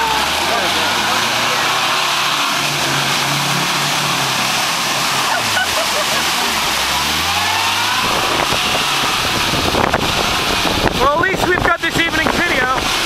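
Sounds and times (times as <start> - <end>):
engine revving under load: 0.0 - 13.0.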